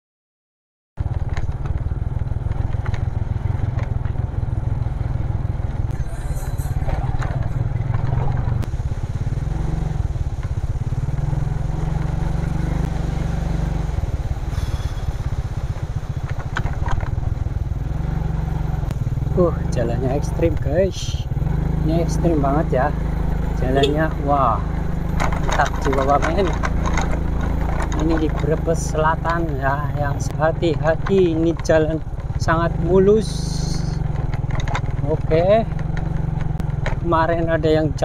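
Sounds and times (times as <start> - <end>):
clatters and knocks: 1.0 - 4.5, 5.7 - 8.7, 15.7 - 17.6, 23.4 - 32.6, 34.0 - 37.6
motorcycle engine rumble: 1.0 - 38.0.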